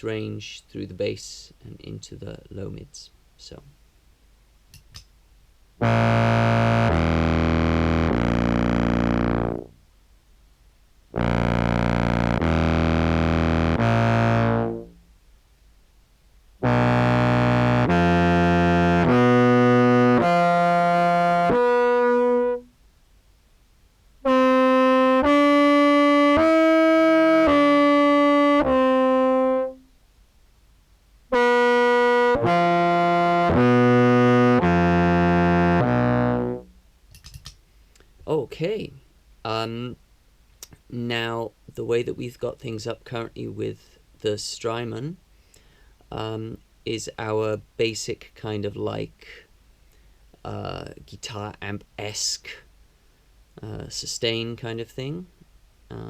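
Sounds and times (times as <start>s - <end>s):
contrabass clarinet sustained notes: 5.8s - 9.7s, 11.2s - 15.0s, 16.6s - 22.7s, 24.2s - 29.9s, 31.3s - 36.7s.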